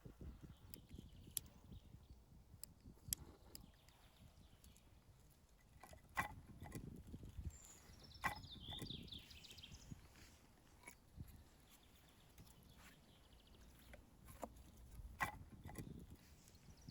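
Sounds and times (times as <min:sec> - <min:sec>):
high bird chirps: 0:07.4 - 0:10.3
faint sharp clicks and knocks: 0:10.6 - 0:16.5.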